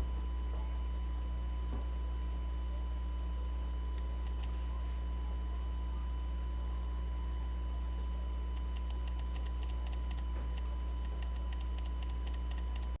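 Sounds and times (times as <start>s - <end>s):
low electrical hum: 0.0s - 13.0s
keyboard typing: 4.2s - 4.5s, 8.6s - 13.0s.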